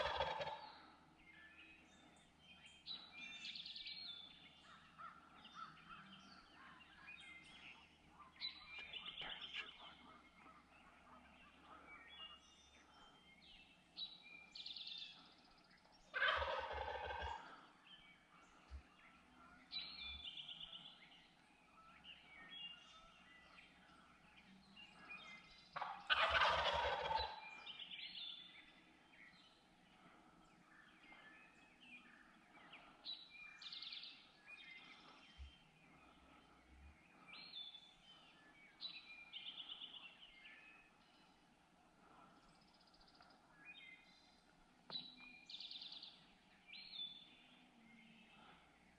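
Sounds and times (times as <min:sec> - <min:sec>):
turkey gobbling: 0:00.0 - 0:00.6, 0:16.1 - 0:17.6, 0:25.8 - 0:27.4
songbirds chirping: 0:00.0 - 0:48.9.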